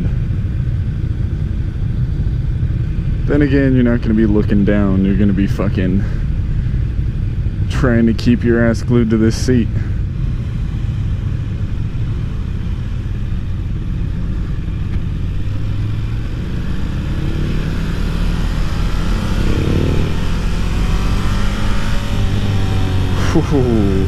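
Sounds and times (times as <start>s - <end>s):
motorcycle engine accelerating: 10.0s - 24.0s.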